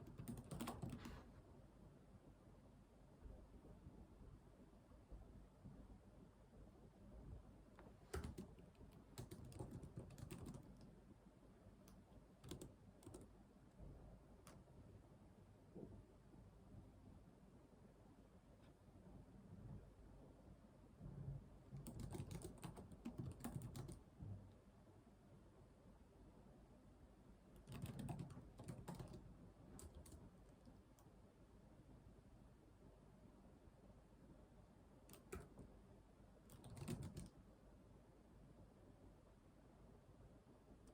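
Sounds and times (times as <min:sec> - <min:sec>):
computer keyboard typing: 0:00.0 - 0:01.2, 0:08.1 - 0:10.9, 0:12.4 - 0:13.3, 0:21.8 - 0:24.0, 0:27.6 - 0:30.3, 0:35.1 - 0:35.7, 0:36.5 - 0:37.4.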